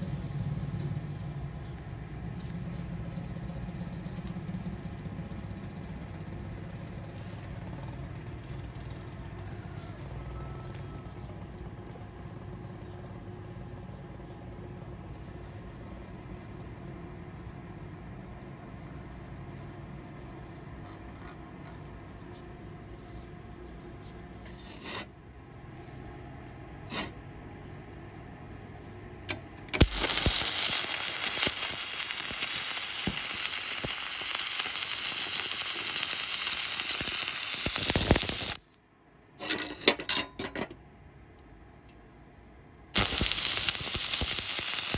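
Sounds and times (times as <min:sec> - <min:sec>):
welding arc crackling and hissing: 0:29.8 - 0:38.6, 0:43.0 - 0:44.9.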